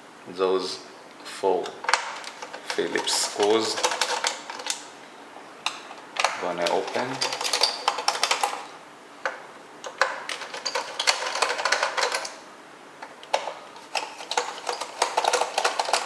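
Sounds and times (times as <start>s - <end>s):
screwdriver clicking and scraping: 13.2s - 16.0s.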